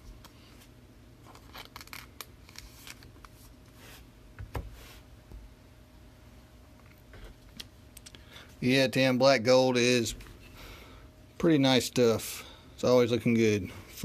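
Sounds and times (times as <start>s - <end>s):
trading cards rustling: 1.2s - 3.5s.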